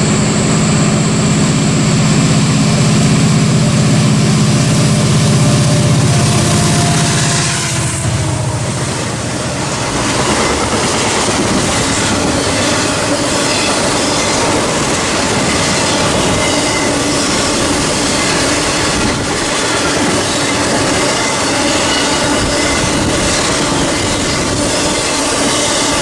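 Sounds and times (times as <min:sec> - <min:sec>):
freight train wheels clattering: 0:01.3 - 0:26.0.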